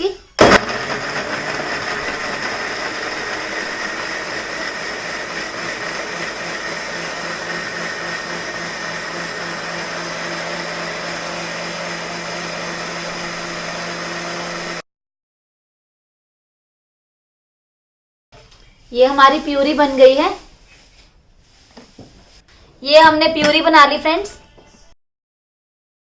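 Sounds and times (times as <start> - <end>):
mixer grinder whining: 0.4 - 14.8.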